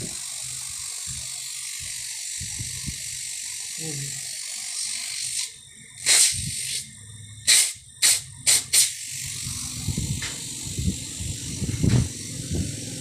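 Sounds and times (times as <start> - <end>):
refrigerator compressor humming: 0.0 - 13.0
short sharp hisses: 6.0 - 6.8, 7.5 - 9.0.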